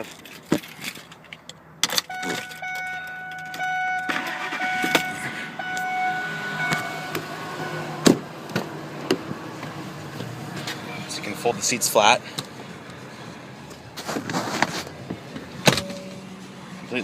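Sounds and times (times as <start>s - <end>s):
car engine starting: 1.9s - 17.0s.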